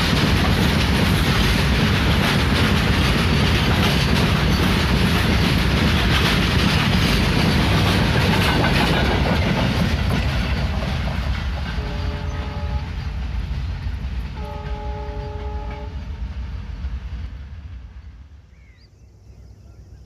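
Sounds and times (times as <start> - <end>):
freight train rumbling: 0.0 - 20.0
train horn blasts: 11.7 - 13.1, 14.3 - 16.2.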